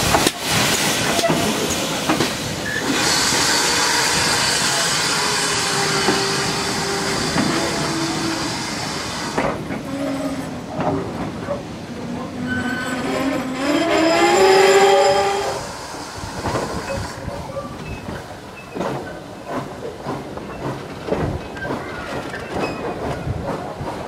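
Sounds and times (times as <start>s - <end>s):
hiss: 0.0s - 10.4s, 13.0s - 17.7s
train coaches rolling: 0.0s - 24.0s
wavering wheel squeal: 12.4s - 15.6s.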